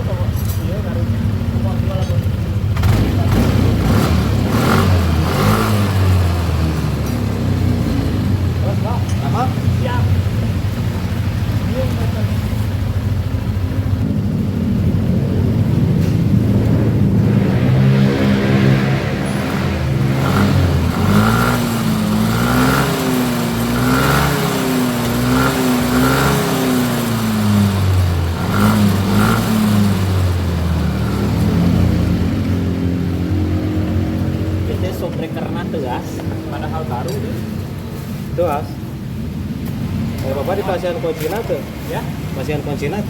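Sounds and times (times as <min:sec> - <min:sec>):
scooter engine revving: 0:00.0 - 0:43.0.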